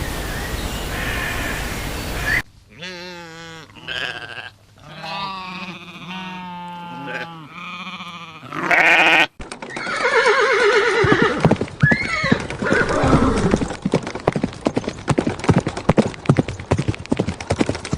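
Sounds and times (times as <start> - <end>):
loud bleat: 2.7 - 9.4
horse whinnying: 3.9 - 13.7
hooves clip-clopping: 9.4 - 17.9.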